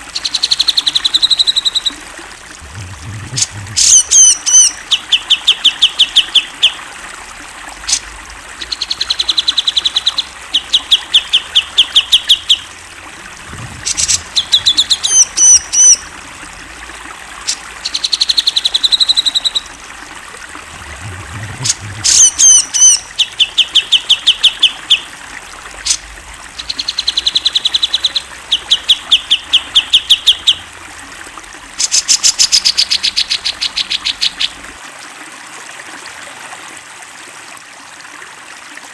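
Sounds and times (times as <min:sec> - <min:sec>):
bulbul singing: 0:02.6 - 0:06.8, 0:08.6 - 0:16.2, 0:17.4 - 0:19.7, 0:20.8 - 0:25.1, 0:26.6 - 0:30.7.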